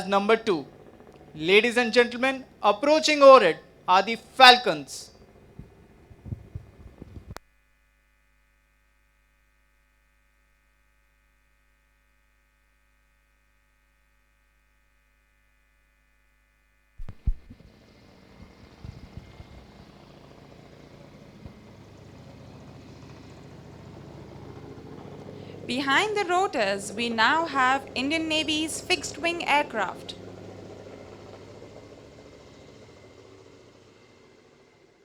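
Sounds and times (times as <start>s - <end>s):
helicopters approaching: 0.0s - 7.4s, 17.5s - 35.0s.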